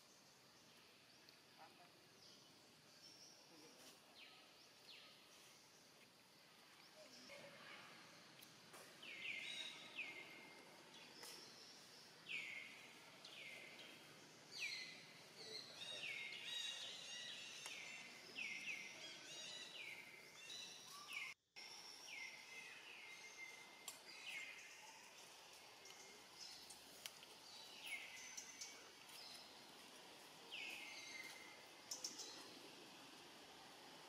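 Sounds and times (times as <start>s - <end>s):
faint steady background noise: 0.0s - 34.0s
birds chirping: 8.9s - 32.8s.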